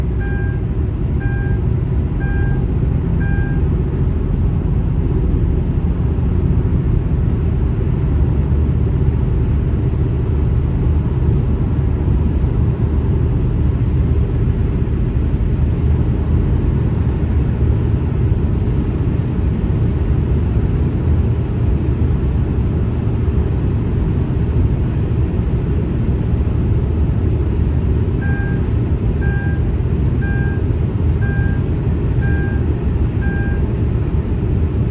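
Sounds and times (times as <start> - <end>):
highway traffic rumble: 0.0 - 34.9
short beeps: 0.2 - 0.6, 1.2 - 1.6, 2.2 - 2.6, 3.2 - 3.6, 28.2 - 28.6, 29.2 - 29.6, 30.2 - 31.6, 32.2 - 33.6.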